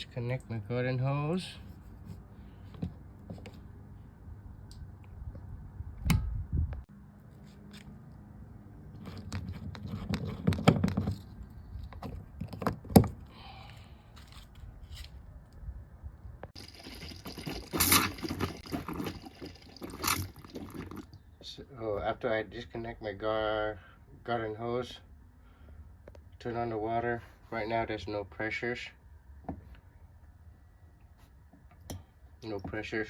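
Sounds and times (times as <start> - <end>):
hose fittings scraping and clicking: 8.9 - 12.7.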